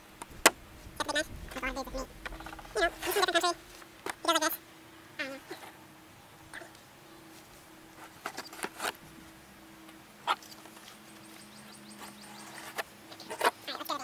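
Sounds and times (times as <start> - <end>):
faint steady hum: 0.0 - 14.0
bird chirps: 9.6 - 13.4.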